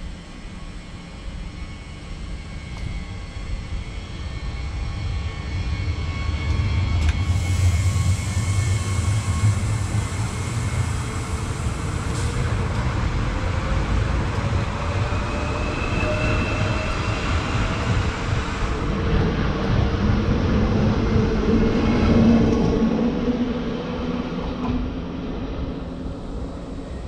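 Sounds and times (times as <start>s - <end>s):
train rumbling past: 0.0s - 27.0s.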